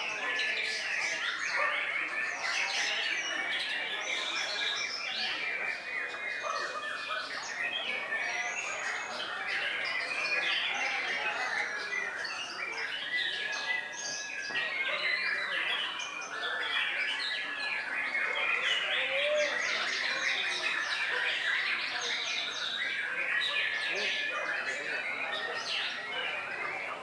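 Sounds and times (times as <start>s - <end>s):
bird singing whistles and chatter: 0.0s - 27.0s.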